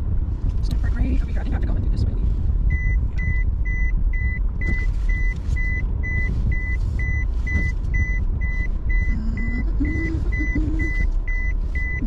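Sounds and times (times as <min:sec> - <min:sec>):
vehicle rumble: 0:00.0 - 0:12.0
high electronic warning beeps: 0:02.7 - 0:12.0.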